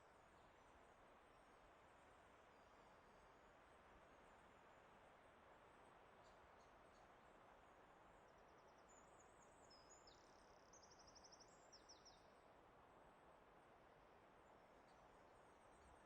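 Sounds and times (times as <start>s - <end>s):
wind or flowing water: 0.0s - 16.0s.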